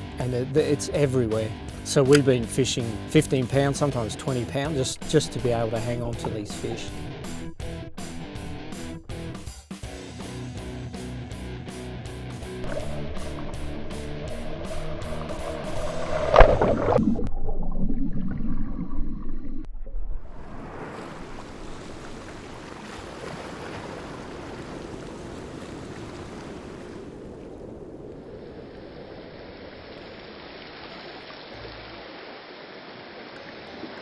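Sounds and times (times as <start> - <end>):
wind and water rushing: 12.6 - 17.0, 20.1 - 34.0.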